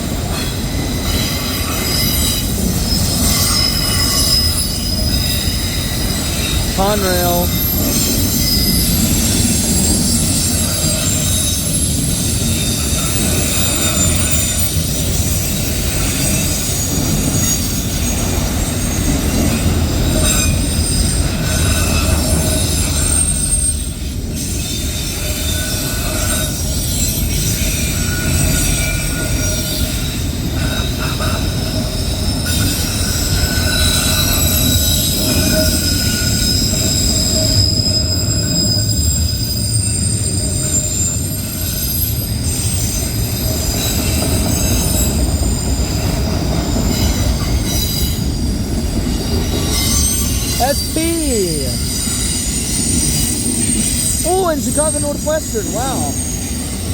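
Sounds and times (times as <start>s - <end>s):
freight cars rumbling on rail: 0.0s - 51.0s
wheel squeal: 0.3s - 6.6s, 8.0s - 50.6s.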